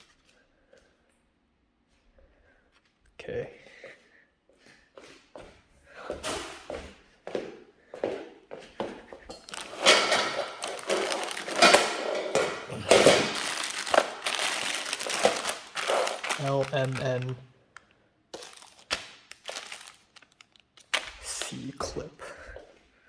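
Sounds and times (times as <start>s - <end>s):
scrapes and knocks: 9.3s - 16.4s
wrapping material crinkling: 9.4s - 21.5s.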